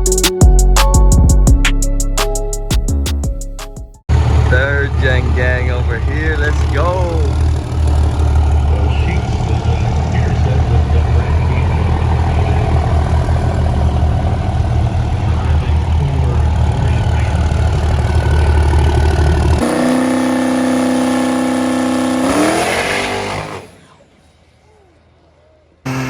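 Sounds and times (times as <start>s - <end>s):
diesel truck engine under load: 4.0s - 24.0s.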